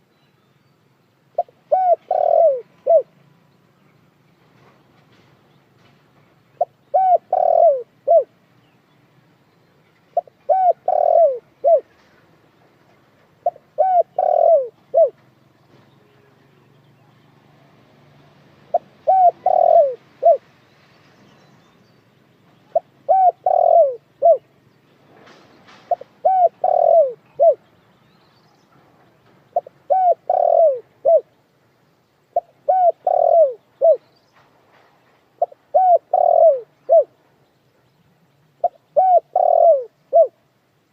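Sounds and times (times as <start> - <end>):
dove cooing: 1.4 - 3.1, 6.6 - 8.3, 10.2 - 11.9, 13.4 - 15.2, 18.7 - 20.4, 22.7 - 24.4, 25.9 - 27.6, 29.6 - 31.3, 32.3 - 34.0, 35.4 - 37.1, 38.6 - 40.4.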